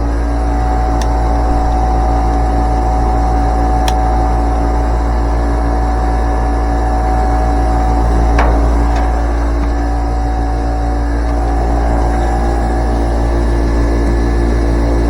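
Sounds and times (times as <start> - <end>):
condenser fan motor humming: 0.0 - 15.0.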